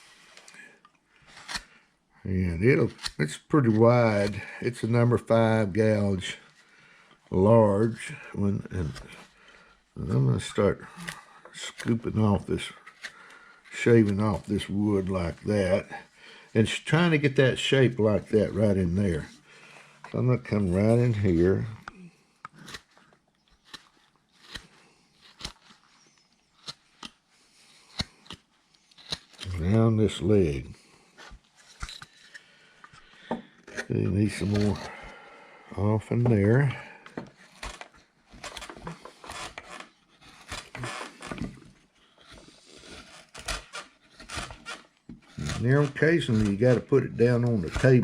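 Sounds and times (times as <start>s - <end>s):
gouge cutting wood: 22.5s - 29.4s, 38.4s - 41.5s, 42.2s - 48.0s.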